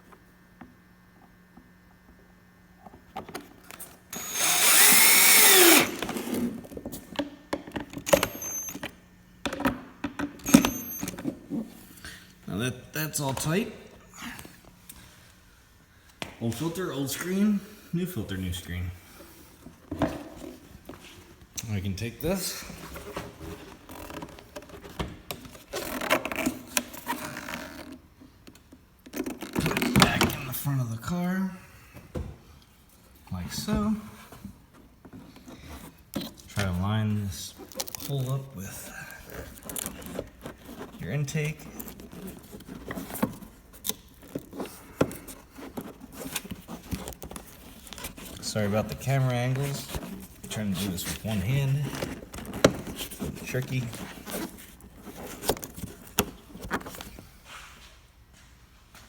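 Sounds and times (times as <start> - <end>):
power drill driving screw: 4.1 - 6.5, 8.0 - 8.8, 10.4 - 11.2.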